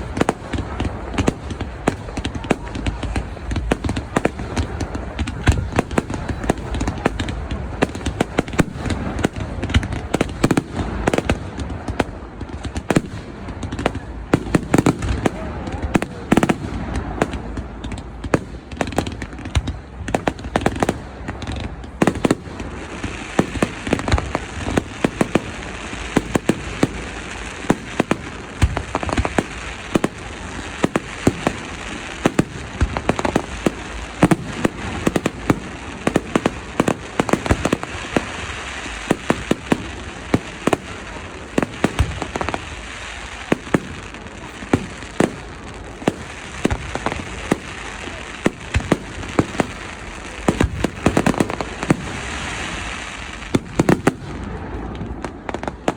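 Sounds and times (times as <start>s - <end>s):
firework bangs: 0.0s - 55.9s
steady hiss: 21.0s - 54.8s.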